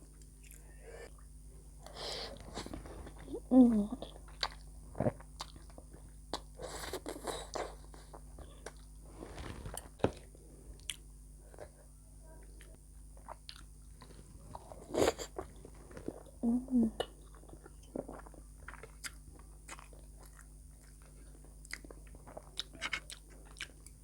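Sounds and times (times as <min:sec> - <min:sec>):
person chewing and biting: 0:04.1 - 0:11.0, 0:17.1 - 0:24.0
rustling: 0:09.1 - 0:10.1.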